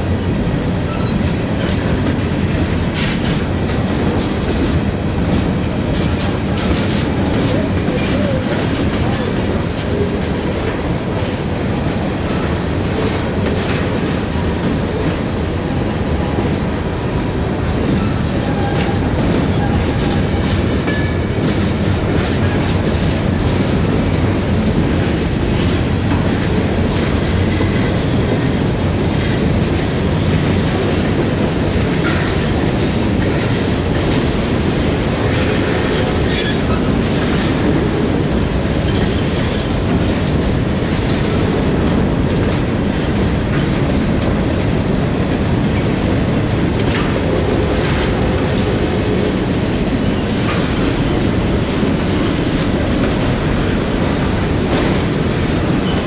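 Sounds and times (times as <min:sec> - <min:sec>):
steel wheels rumbling on rail: 0:00.0 - 0:56.0
wheels clicking over rail joints: 0:00.0 - 0:56.0
faint high wheel squeal: 0:00.8 - 0:01.2.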